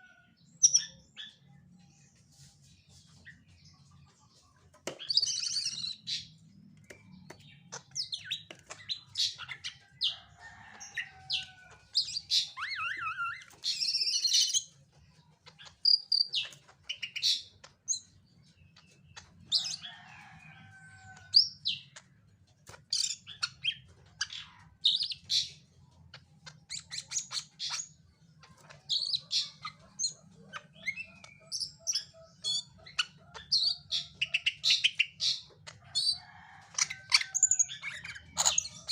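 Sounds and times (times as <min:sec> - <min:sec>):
bird chirping and whistling: 0:12.0 - 0:14.7.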